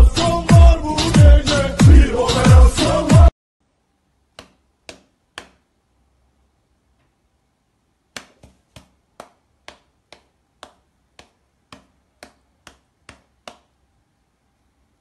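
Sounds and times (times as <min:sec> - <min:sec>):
cat paws slapping a hand: 0:08.1 - 0:13.7.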